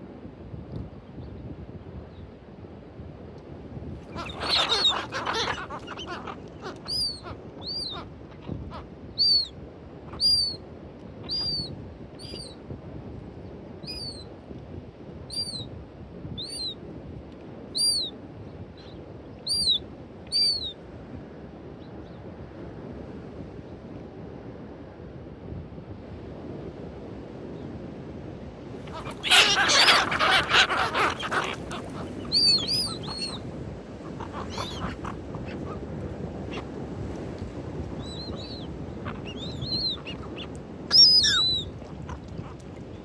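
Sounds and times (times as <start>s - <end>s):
wind: 0.0s - 43.0s
birds calling: 4.0s - 9.5s, 28.8s - 43.0s
water noise: 28.8s - 43.0s.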